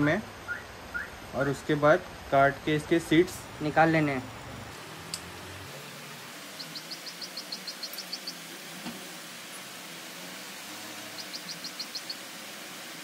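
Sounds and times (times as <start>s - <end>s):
steady low hiss: 0.0s - 13.0s
small bird chirping: 0.5s - 1.2s, 6.4s - 8.5s, 11.0s - 12.3s.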